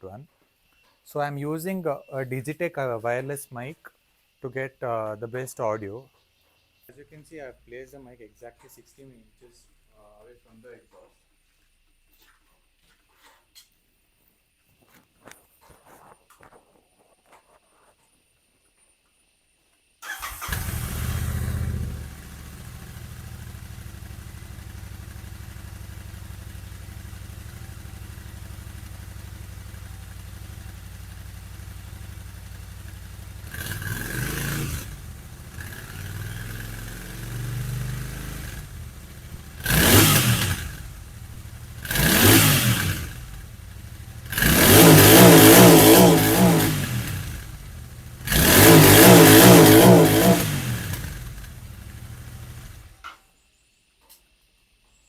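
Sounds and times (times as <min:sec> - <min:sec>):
motorcycle engine revving: 0:20.0 - 0:53.0
motorcycle engine idling: 0:20.1 - 0:45.4, 0:46.2 - 0:49.2, 0:50.5 - 0:53.0.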